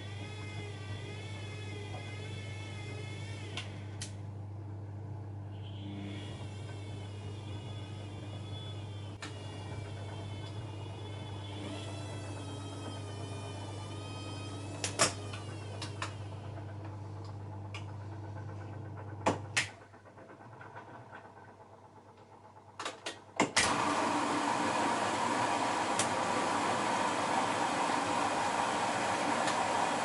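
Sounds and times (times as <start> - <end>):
wavering motor whine: 5.5 - 18.9
washing machine drum humming: 9.2 - 30.0.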